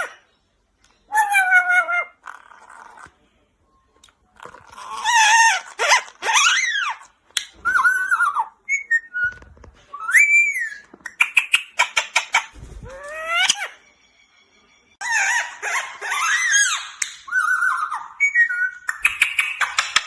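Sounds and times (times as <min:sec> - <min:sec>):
parrot whistling and squawking: 0:01.1 - 0:03.0, 0:04.7 - 0:13.8, 0:15.0 - 0:20.0.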